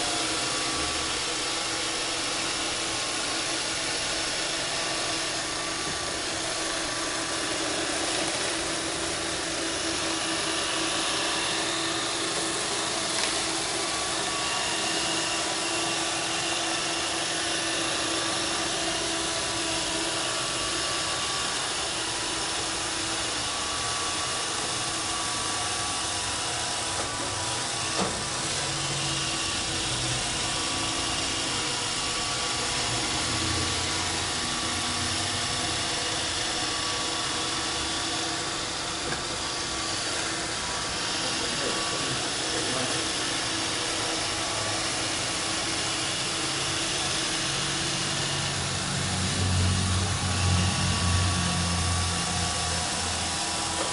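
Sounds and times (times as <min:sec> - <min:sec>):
robot vacuum whirring: 0:00.0 - 0:53.9.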